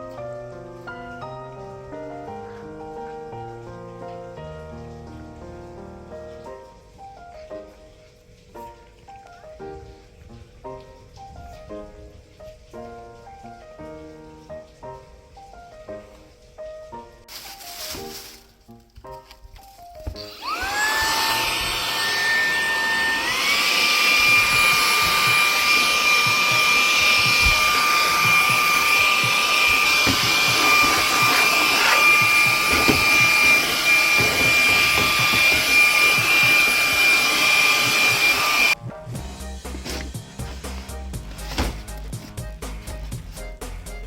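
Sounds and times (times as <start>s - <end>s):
electric appliance motor whining: 20.0s - 43.4s.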